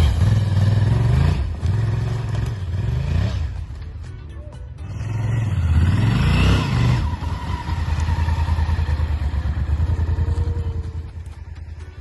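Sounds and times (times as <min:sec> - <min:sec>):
motorcycle engine revving: 0:00.0 - 0:03.8, 0:04.8 - 0:12.0.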